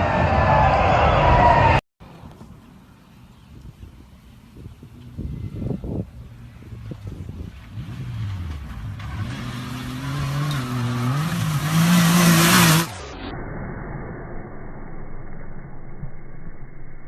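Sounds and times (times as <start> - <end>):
rushing noise: 0.0 - 1.8
off-road vehicle engine revving: 5.1 - 13.1.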